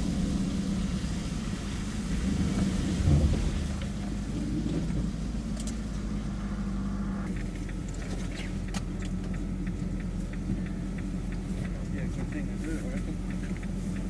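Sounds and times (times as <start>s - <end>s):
car engine hum inside cabin: 0.0s - 14.0s
light clicks and ticks: 7.3s - 14.0s.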